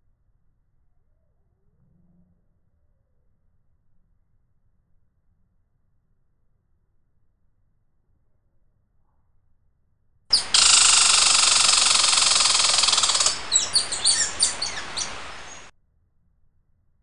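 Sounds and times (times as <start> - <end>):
songbird buzzing trill: 10.3 - 15.7
songbird high chirps: 10.3 - 15.7.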